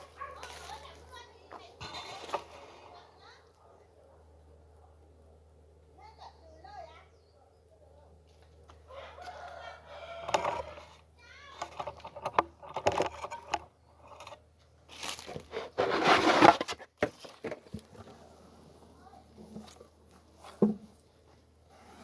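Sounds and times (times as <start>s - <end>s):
rooster crowing: 8.9s - 10.9s
loud rustling: 15.0s - 16.8s.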